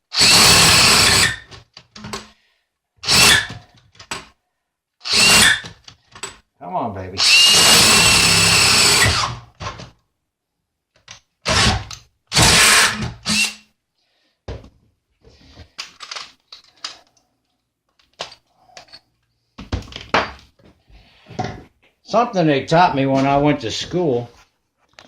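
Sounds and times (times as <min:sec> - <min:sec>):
power drill boring through metal: 0:00.1 - 0:01.5, 0:03.0 - 0:03.6, 0:05.0 - 0:05.6, 0:07.2 - 0:09.4, 0:11.5 - 0:13.6.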